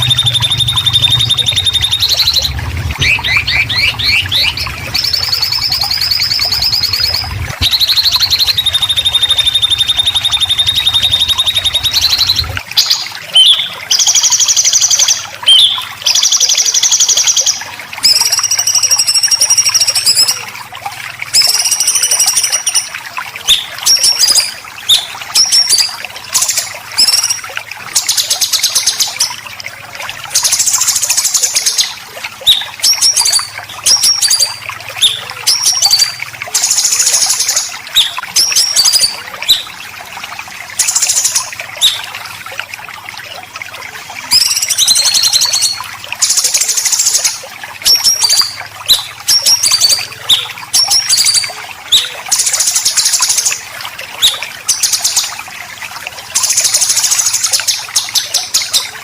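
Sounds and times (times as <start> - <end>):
songbird rasping calls: 0.0 - 13.7
high whistled bird notes: 0.0 - 16.6, 21.4 - 22.9.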